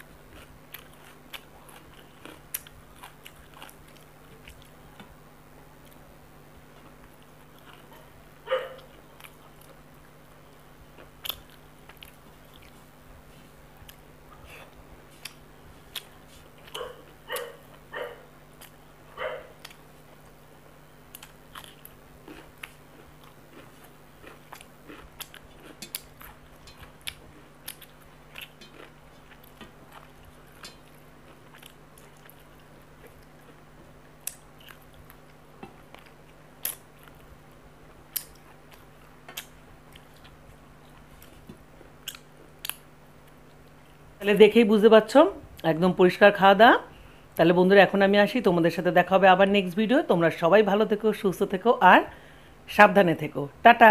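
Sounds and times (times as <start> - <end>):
chewing and mouth sounds: 0.0 - 5.2, 6.7 - 12.9, 13.8 - 20.4, 21.0 - 44.0.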